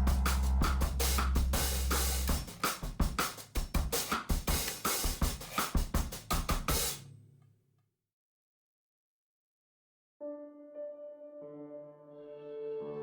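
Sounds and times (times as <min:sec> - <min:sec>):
deep bass: 0:00.0 - 0:02.6
drum kit beat: 0:00.0 - 0:07.0.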